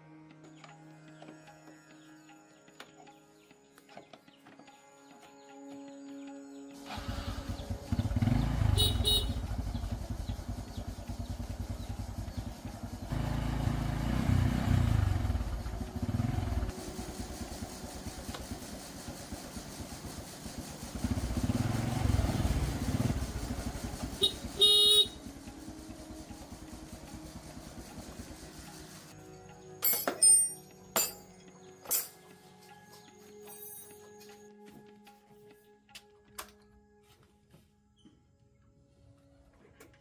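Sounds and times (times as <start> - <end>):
motorcycle engine revving: 6.8 - 29.2
short horn beep: 8.7 - 9.5, 24.2 - 25.2.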